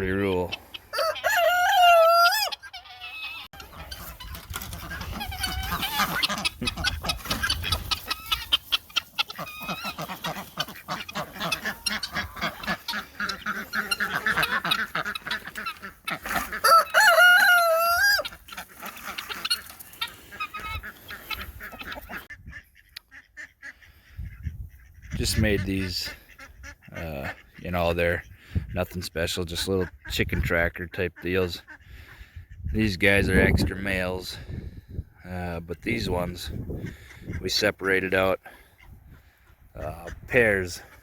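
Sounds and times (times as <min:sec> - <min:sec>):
chickens clucking: 0:00.0 - 0:41.0
rooster crowing: 0:00.9 - 0:02.6, 0:16.6 - 0:18.2.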